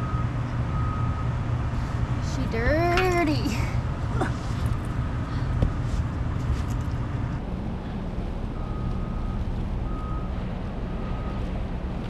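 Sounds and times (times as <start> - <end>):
low outdoor rumble: 0.0 - 12.0
handling clicks and rustles: 6.4 - 7.0.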